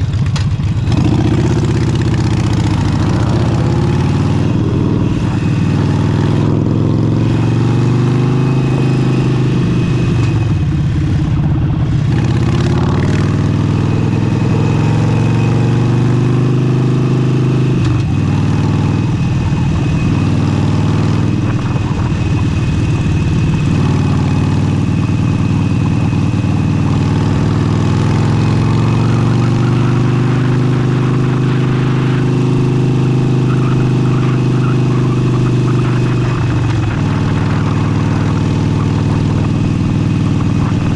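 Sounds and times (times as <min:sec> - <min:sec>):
motorcycle engine revving: 0:00.0 - 0:40.9
wind noise on microphone: 0:21.2 - 0:23.8.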